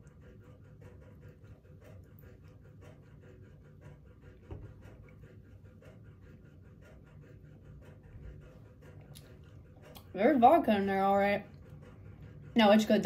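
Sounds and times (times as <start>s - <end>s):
mouth chewing clicks: 9.0s - 10.1s.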